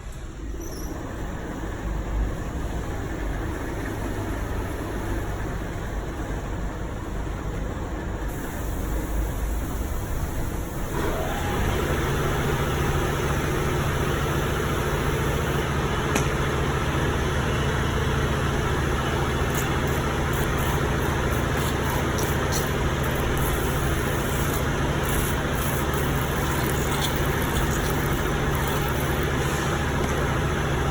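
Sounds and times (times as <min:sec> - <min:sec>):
tumble dryer humming: 0:10.6 - 0:30.9.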